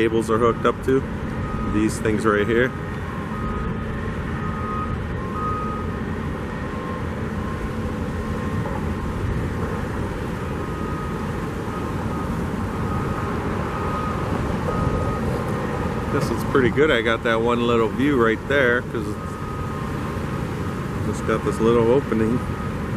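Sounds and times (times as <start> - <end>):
wind buffeting the microphone: 3.0 - 18.5.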